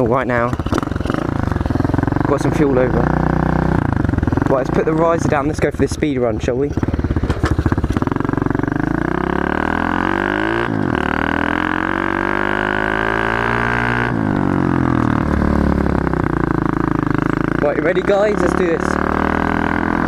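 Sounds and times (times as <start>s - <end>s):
motorbike engine accelerating: 0.0s - 20.0s.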